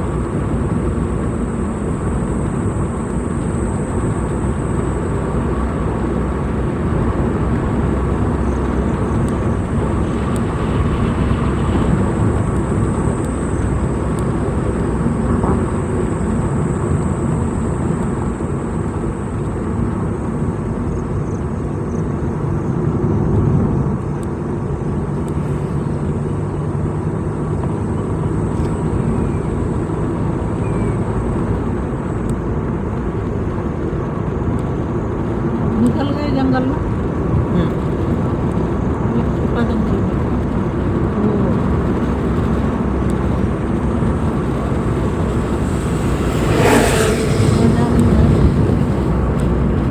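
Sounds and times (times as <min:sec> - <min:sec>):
vehicle engine and tyre noise: 0:00.0 - 0:49.9.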